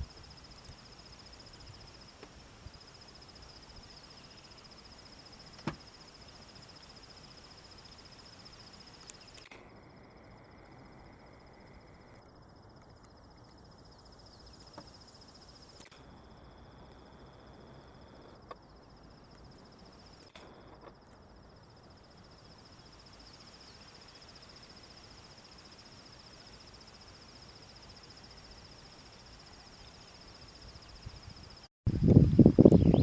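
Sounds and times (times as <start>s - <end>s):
high-pitched insect trill: 0.0s - 33.0s
sharp clicks: 9.0s - 9.7s.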